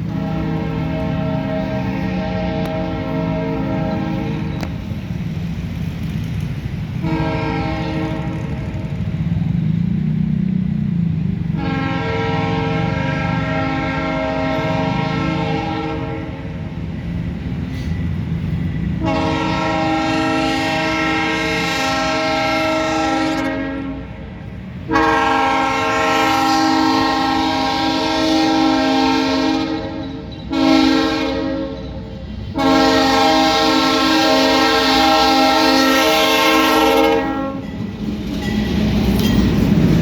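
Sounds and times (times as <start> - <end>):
locomotive air horn blasts: 0.0 - 5.2, 6.9 - 9.1, 11.4 - 37.8
low rumble of locomotives: 0.0 - 40.0.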